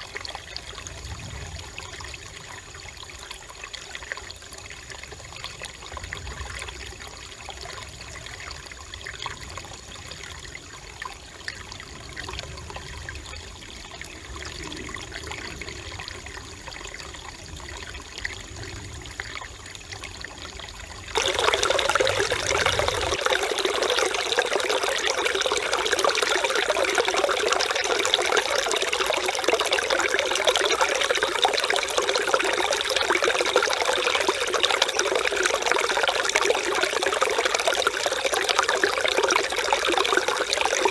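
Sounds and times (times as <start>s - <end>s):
stream babbling over rocks: 11.8s - 40.9s.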